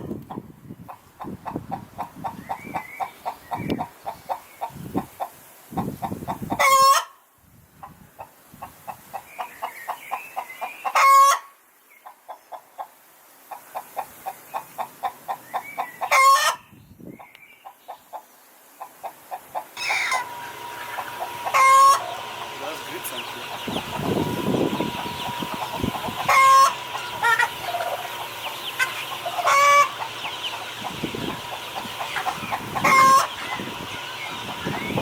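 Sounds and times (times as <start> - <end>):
hen cackling: 5.8 - 7.2, 10.9 - 11.5, 15.0 - 16.6, 19.0 - 35.0.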